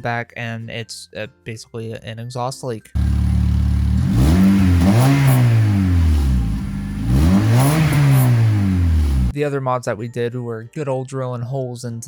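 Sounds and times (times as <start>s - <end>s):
car engine revving: 3.0s - 9.3s.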